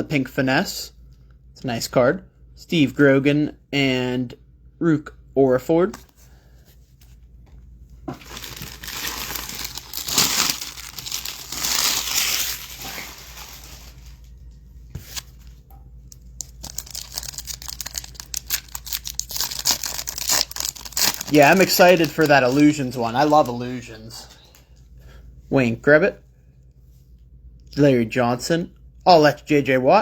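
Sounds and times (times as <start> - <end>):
foil wrappers crinkling: 8.1 - 24.6.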